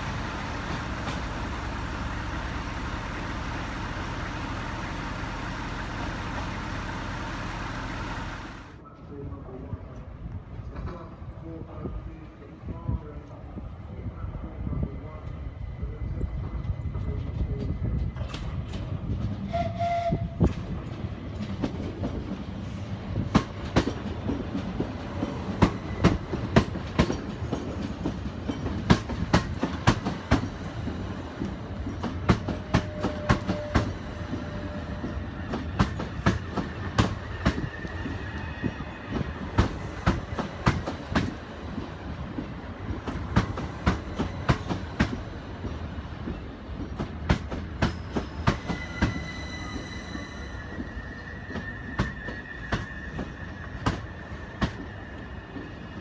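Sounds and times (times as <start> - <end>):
train rumbling past: 0.0 - 12.7, 13.4 - 56.0
train squeal: 19.4 - 20.6, 25.2 - 28.7, 32.4 - 41.0, 47.8 - 56.0.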